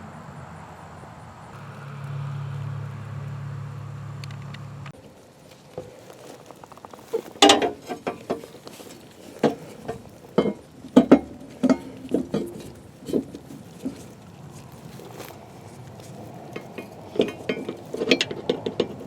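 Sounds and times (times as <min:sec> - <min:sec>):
tools knocking and clattering: 0:07.2 - 0:14.0, 0:16.5 - 0:19.0.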